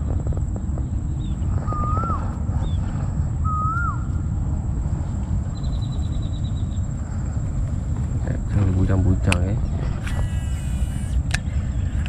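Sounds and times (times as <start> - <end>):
low rumble: 0.0 - 12.0
bird whistling: 1.2 - 2.8, 3.4 - 4.2, 9.6 - 12.0.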